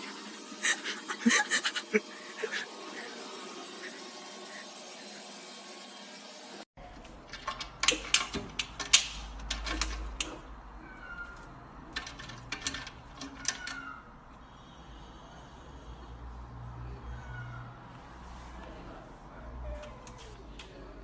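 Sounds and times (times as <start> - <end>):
sharp clicks and knocks: 7.0 - 10.5, 11.3 - 13.9.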